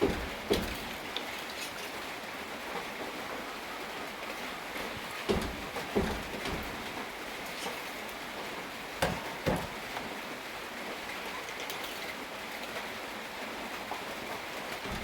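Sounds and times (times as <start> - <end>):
sharp knocks: 0.0 - 1.0, 5.0 - 7.1, 9.0 - 10.1
steady rain falling: 0.0 - 15.0.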